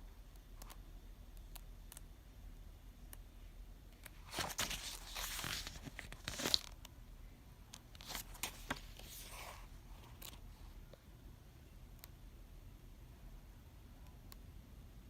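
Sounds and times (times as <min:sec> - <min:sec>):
rustling crinkling handling noise: 0:04.1 - 0:06.8, 0:07.9 - 0:10.4.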